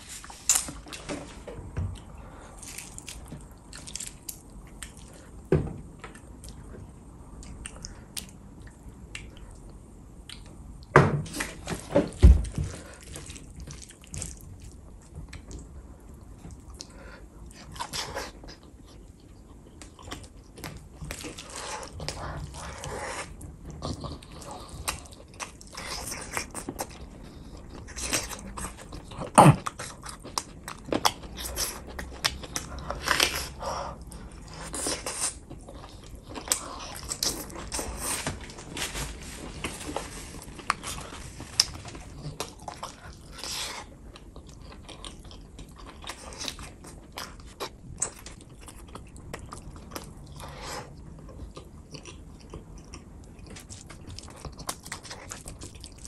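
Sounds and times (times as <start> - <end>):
wet chewing and smacking: 12.4 - 38.7, 39.8 - 56.0.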